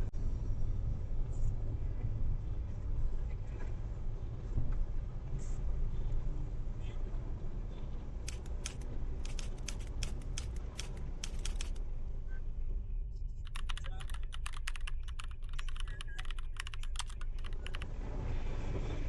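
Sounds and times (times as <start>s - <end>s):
rapid rattling: 8.3s - 11.8s, 13.5s - 17.9s.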